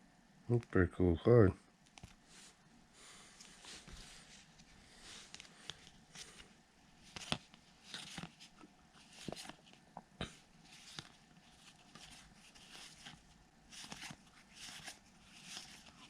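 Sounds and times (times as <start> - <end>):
cards rustling: 3.4 - 16.0.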